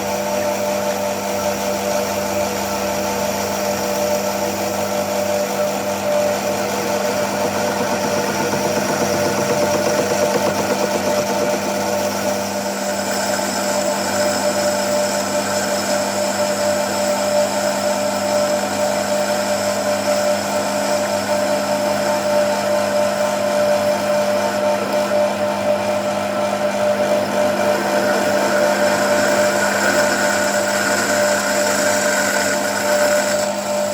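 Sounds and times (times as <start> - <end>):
machine motor hum and whine: 0.0 - 33.9.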